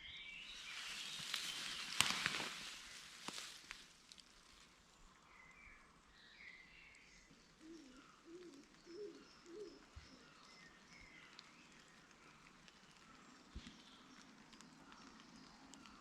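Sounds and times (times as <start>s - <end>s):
small birds chirping: 0.0s - 16.0s
pigeon cooing: 7.6s - 10.4s.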